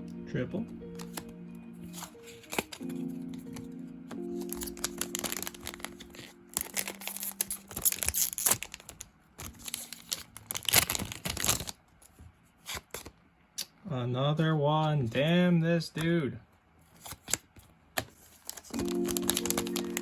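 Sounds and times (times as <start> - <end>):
foil wrappers crinkling and tearing: 1.9 - 3.6, 4.2 - 11.8, 18.0 - 20.0.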